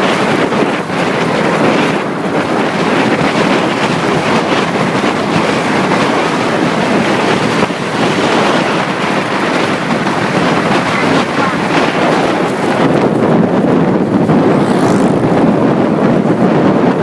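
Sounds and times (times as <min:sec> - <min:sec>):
motorcycle engine: 0:00.0 - 0:17.0
wind rush on microphone: 0:00.0 - 0:17.0.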